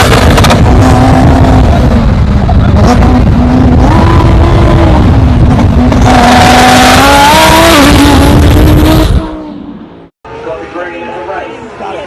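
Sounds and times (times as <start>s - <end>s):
loud engine revving: 0.0s - 9.6s.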